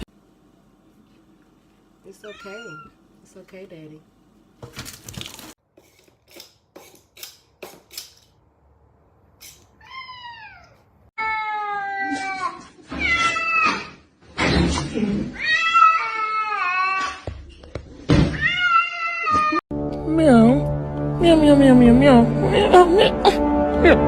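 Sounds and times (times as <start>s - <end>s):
cat meowing: 2.2s - 3.0s.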